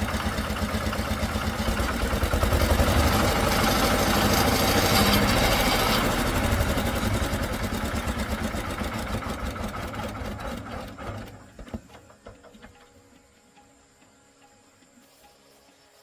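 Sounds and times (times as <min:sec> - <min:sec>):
threshing machine engine winding down: 0:00.0 - 0:12.8.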